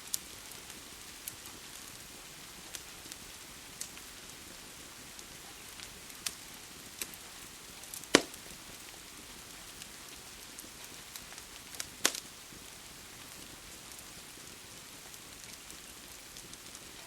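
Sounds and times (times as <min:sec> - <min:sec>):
rain hissing: 0:00.0 - 0:17.0
wood fire crackling and popping: 0:00.0 - 0:17.0.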